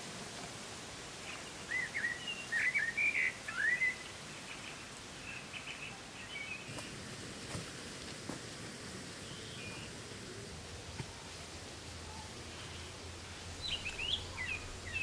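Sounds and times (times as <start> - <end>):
forest ambience hiss: 0.0 - 15.0
songbird chirping: 1.3 - 6.9, 12.0 - 15.0.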